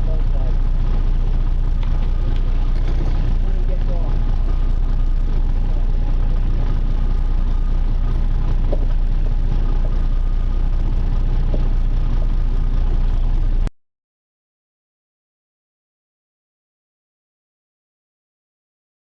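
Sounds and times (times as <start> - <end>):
boat engine running: 0.0 - 13.7
continuous rushing noise: 0.0 - 13.7
faint steady tones: 0.0 - 13.7.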